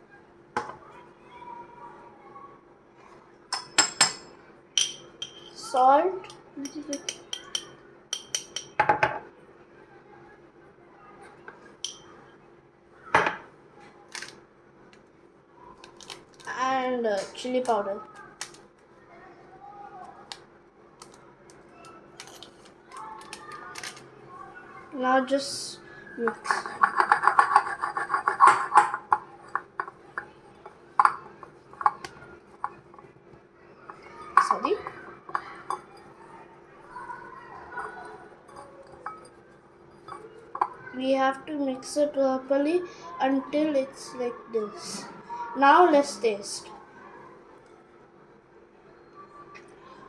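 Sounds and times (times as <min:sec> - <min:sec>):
spoon clinking against dishware: 0:03.5 - 0:05.6, 0:06.2 - 0:09.0, 0:11.8 - 0:12.1, 0:26.3 - 0:33.1, 0:33.9 - 0:36.1, 0:36.9 - 0:40.8
utensil scraping a bowl: 0:26.2 - 0:33.0, 0:33.9 - 0:40.8
dishware knocking: 0:26.3 - 0:30.3, 0:31.0 - 0:32.8, 0:33.9 - 0:36.0, 0:40.0 - 0:40.8.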